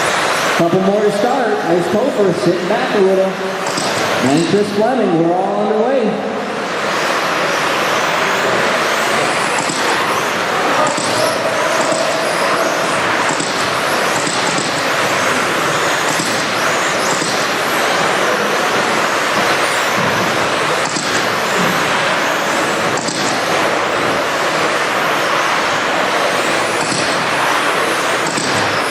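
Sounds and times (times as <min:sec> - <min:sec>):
rc truck motors whining: 0:06.6 - 0:28.9.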